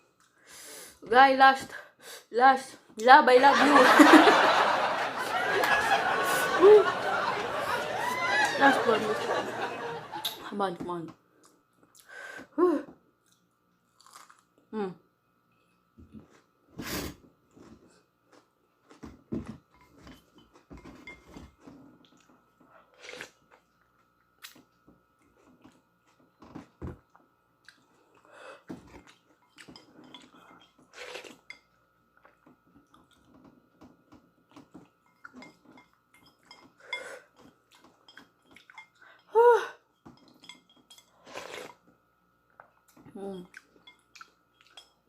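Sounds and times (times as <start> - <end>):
person chewing noodles: 13.2 - 14.6, 27.1 - 31.5
utensils clinking on dish: 35.1 - 39.0, 40.0 - 41.8.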